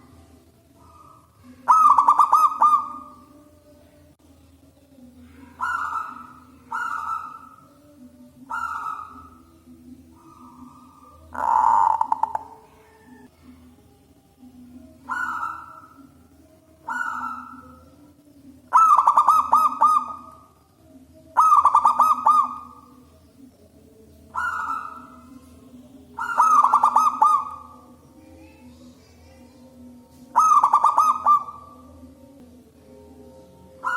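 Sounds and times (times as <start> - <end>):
dove cooing: 0.0 - 3.4, 5.2 - 13.3, 14.9 - 20.5, 21.3 - 23.1, 24.3 - 28.0, 29.3 - 32.0, 33.5 - 33.9.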